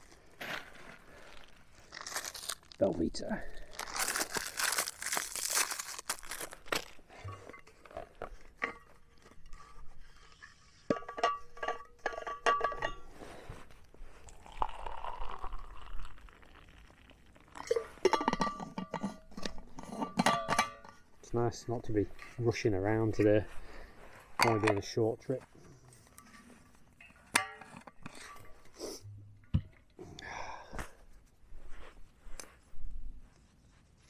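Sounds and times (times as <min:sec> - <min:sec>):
crunches: 0:00.0 - 0:03.0, 0:03.6 - 0:13.9
plastic packet crinkling: 0:01.1 - 0:07.1.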